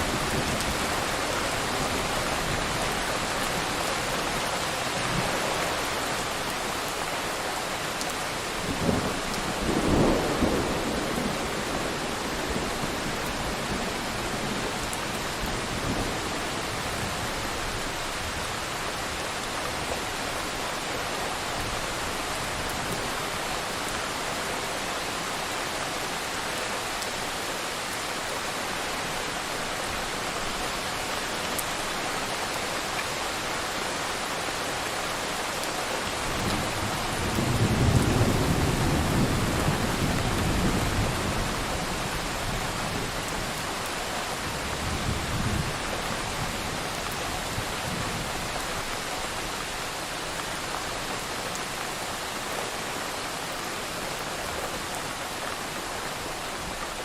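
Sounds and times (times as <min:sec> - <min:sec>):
heavy rain hissing: 0:00.0 - 0:57.0
thunder rumbling: 0:08.7 - 0:16.3.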